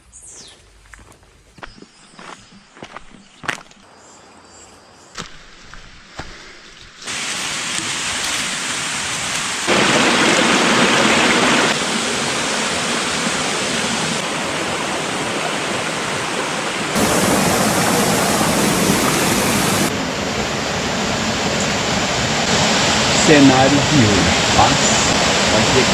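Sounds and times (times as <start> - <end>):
running water rushing: 7.0 - 25.9.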